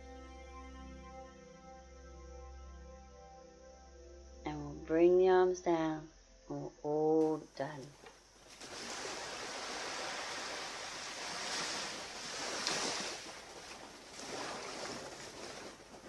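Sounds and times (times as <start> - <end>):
waves washing on beach: 8.5 - 16.0.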